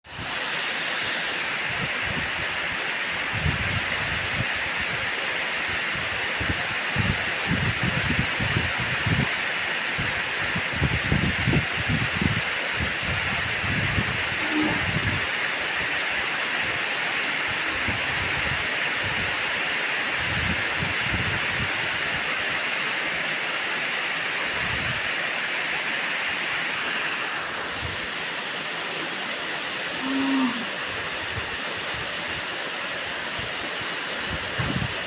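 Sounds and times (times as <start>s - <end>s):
steady rain falling: 0.0s - 35.0s
low-pitched call: 14.4s - 15.2s, 29.9s - 30.8s.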